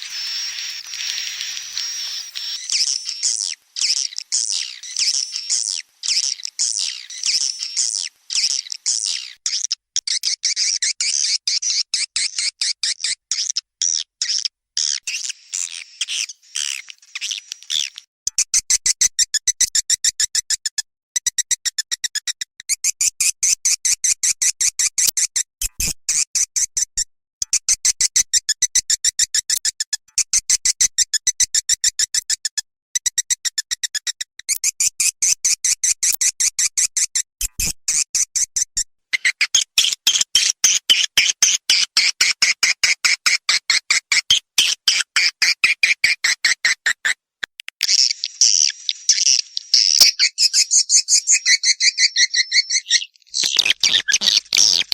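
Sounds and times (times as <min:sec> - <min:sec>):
swiftlet twittering: 0:00.0 - 0:09.5
sharp clicking chirps: 0:00.0 - 0:20.2, 0:31.8 - 0:54.9.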